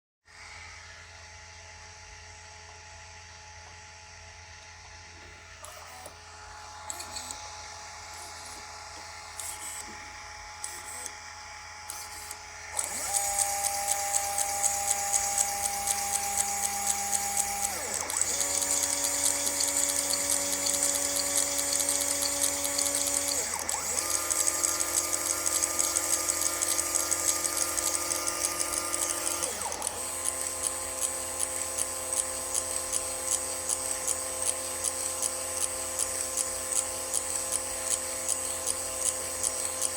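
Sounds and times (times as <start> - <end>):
stepper motors whining: 5.3 - 39.9
scattered clicks: 11.8 - 39.9
fast regular ticking: 12.8 - 39.9.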